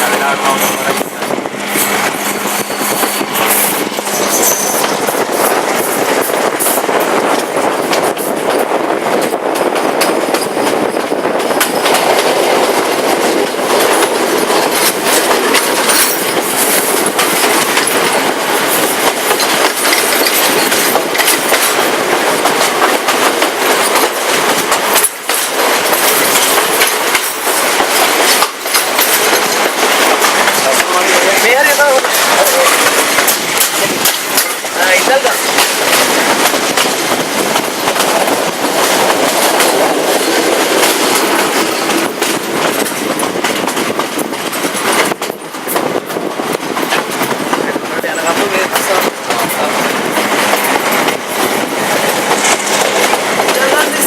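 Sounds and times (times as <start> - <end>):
train carriage rumbling and rattling: 0.0 - 54.0
train wheels clicking over rail joints: 0.0 - 54.0.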